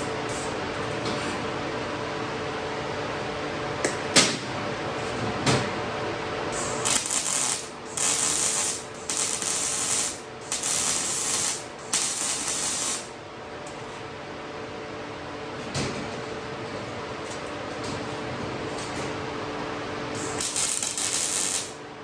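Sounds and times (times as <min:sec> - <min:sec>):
welding arc crackling: 0:06.6 - 0:13.1, 0:20.2 - 0:21.8.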